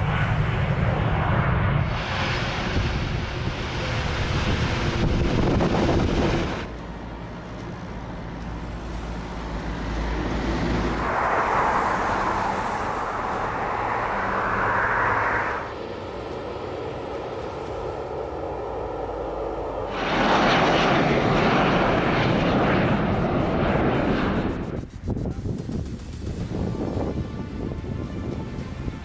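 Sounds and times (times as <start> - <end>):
jet airliner engine noise: 0.0 - 29.0
higher rushing noise: 9.0 - 27.2.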